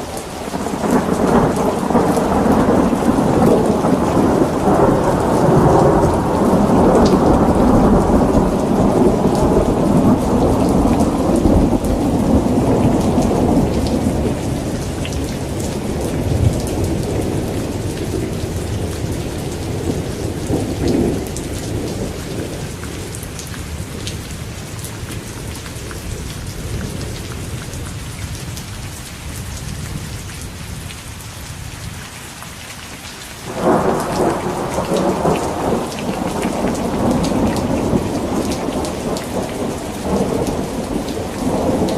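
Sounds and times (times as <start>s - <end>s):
thunder rumbling: 0.0s - 25.5s, 33.5s - 41.9s
steady rain: 0.0s - 41.9s.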